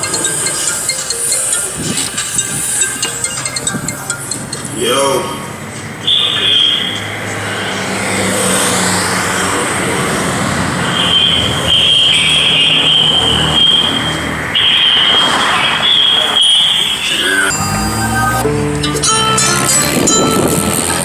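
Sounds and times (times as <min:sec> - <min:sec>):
high-pitched whine: 0:00.0 - 0:05.5, 0:17.2 - 0:21.0
car engines driving past: 0:00.0 - 0:21.0.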